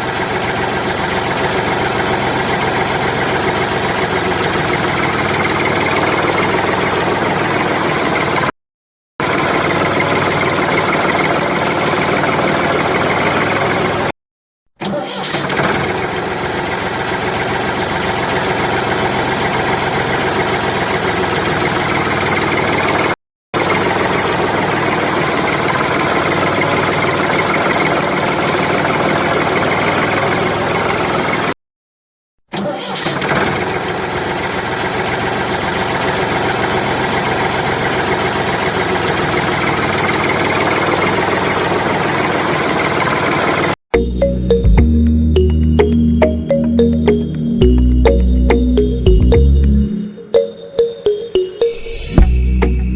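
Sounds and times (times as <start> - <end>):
small tractor motor running: 0.0 - 8.5, 9.2 - 14.1, 14.8 - 31.5, 32.6 - 43.8.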